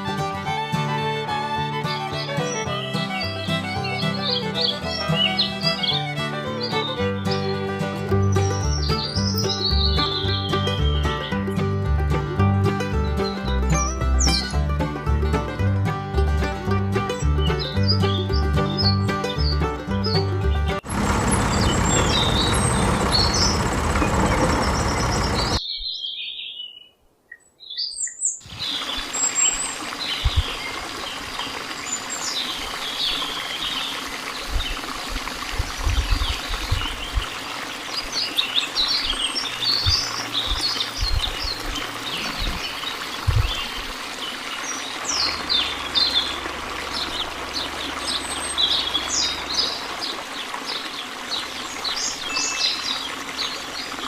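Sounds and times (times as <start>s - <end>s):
background music: 0.0s - 20.8s
small birds chirping: 2.1s - 11.5s, 17.4s - 34.9s, 35.7s - 54.0s.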